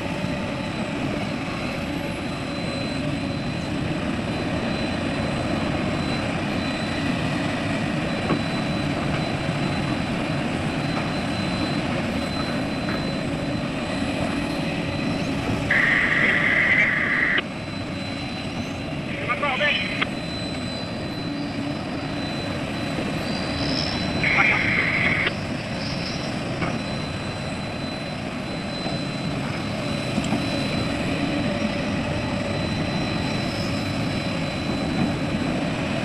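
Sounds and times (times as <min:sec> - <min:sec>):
diesel machinery running: 0:00.0 - 0:36.0
loud high-pitched noise: 0:15.7 - 0:17.4, 0:19.0 - 0:21.4, 0:23.2 - 0:26.0.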